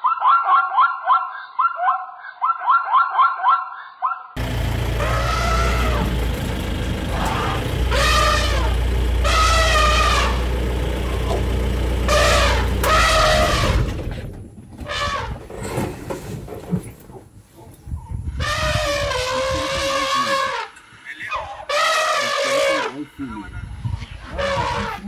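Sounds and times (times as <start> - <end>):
steady low rumble: 4.4 - 14.7
elephants trumpeting: 4.4 - 15.5, 18.4 - 20.8, 21.6 - 23.0, 24.1 - 25.0.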